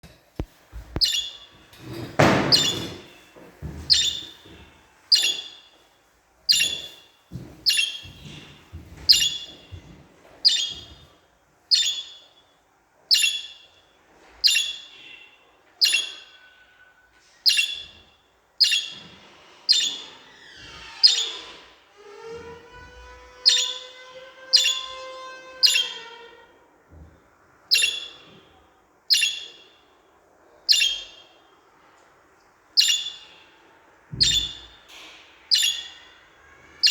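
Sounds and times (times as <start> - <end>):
budgerigars chirping: 1.0 - 1.5, 2.2 - 3.0, 3.9 - 4.4, 5.1 - 5.7, 6.5 - 8.2, 9.1 - 9.7, 10.4 - 11.0, 11.7 - 12.3, 13.1 - 13.8, 14.4 - 16.5, 17.4 - 18.0, 18.6 - 19.0, 19.7 - 20.2, 21.0 - 21.5, 23.4 - 26.2, 27.7 - 28.4, 29.1 - 29.8, 30.7 - 31.4, 32.8 - 33.4, 34.2 - 34.8, 35.5 - 36.2.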